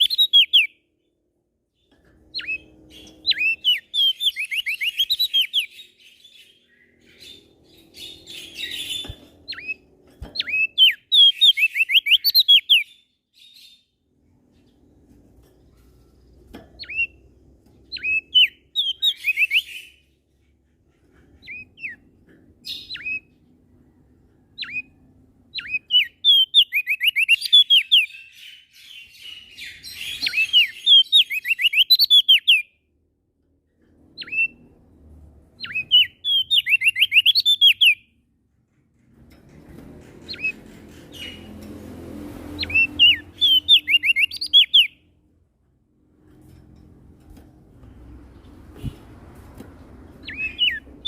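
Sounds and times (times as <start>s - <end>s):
bird whistling sharp notes: 42.6s - 45.0s.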